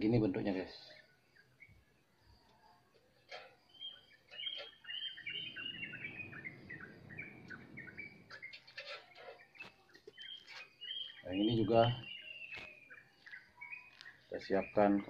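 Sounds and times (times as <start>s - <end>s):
small bird chirping: 0.5s - 15.0s.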